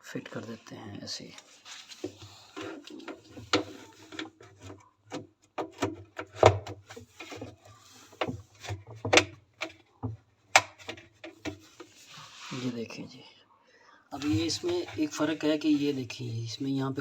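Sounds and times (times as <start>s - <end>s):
plastic parts clicking and knocking: 2.0s - 11.9s.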